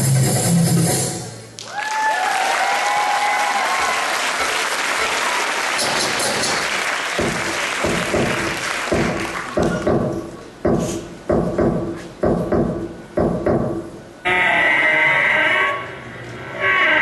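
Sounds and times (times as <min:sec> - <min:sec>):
audience applauding: 0:01.6 - 0:09.9.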